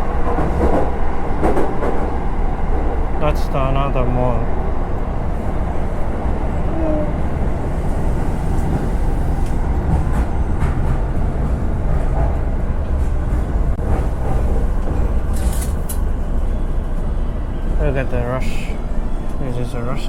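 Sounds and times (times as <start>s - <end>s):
train rumbling on rails: 0.0s - 20.0s
faint rail clacks: 0.2s - 2.9s.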